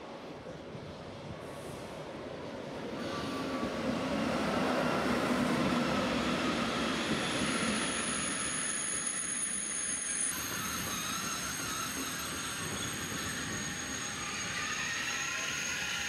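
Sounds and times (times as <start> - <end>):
train wheels rumbling on rails: 0.0 - 16.0
thin high squeal: 7.1 - 16.0.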